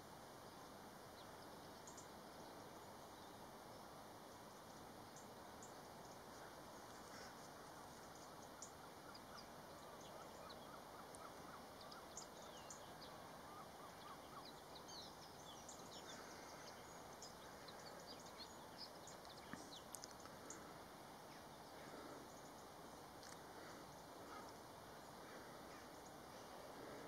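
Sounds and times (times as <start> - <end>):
faint outdoor hiss: 0.0 - 27.0.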